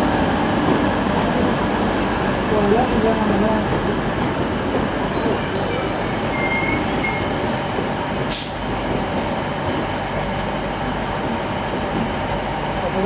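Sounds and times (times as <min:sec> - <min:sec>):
train rumble: 0:00.0 - 0:13.0
train wheel squeal: 0:04.6 - 0:10.0.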